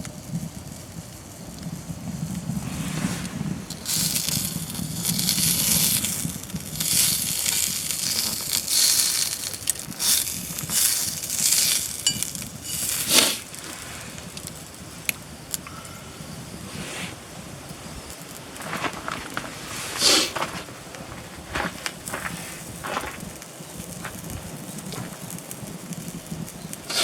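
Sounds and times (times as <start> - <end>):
campfire crackles: 0.0 - 27.0
food sizzling in a skillet: 2.1 - 15.6, 22.0 - 27.0.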